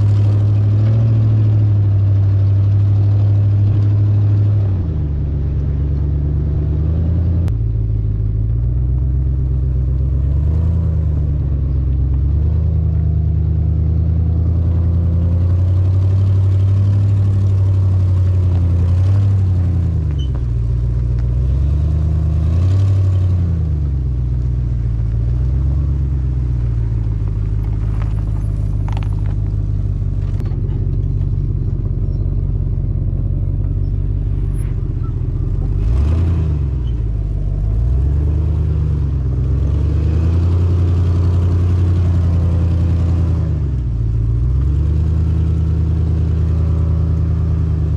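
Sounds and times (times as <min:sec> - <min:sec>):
engine rumbling with leaking exhaust: 0:00.0 - 0:47.9.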